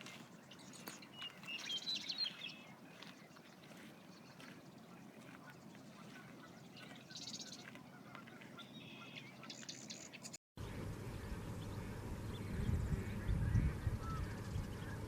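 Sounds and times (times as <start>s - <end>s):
high bird calls and chirps: 0.0s - 10.4s, 11.1s - 15.0s
low rumbling background: 10.6s - 15.0s.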